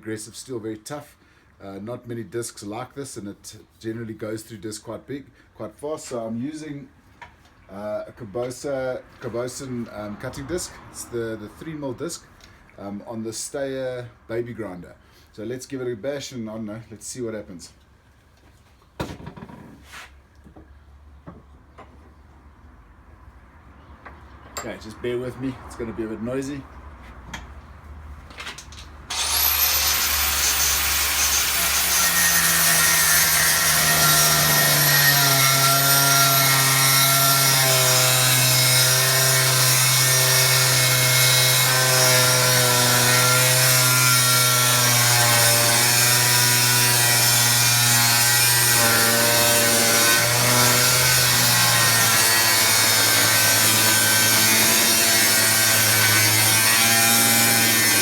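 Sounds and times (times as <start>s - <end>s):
angle grinder cutting steel: 29.1s - 58.0s.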